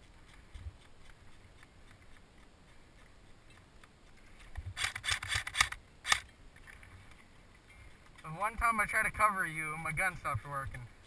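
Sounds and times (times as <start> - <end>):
close rustling and scraping: 0.0 - 10.8
sharp click: 4.8 - 6.3.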